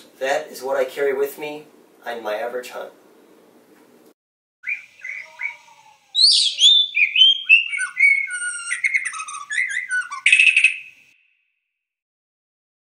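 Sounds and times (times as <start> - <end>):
songbird calls: 4.6 - 11.2
bird harsh buzz: 4.6 - 11.4
whistled birdsong: 4.6 - 11.6.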